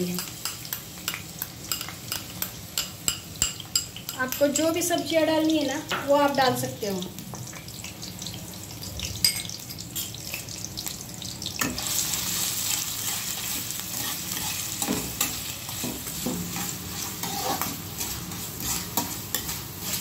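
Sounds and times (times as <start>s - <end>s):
onion sizzling in hot oil: 0.0s - 20.0s
spatula scraping a pan: 11.6s - 20.0s.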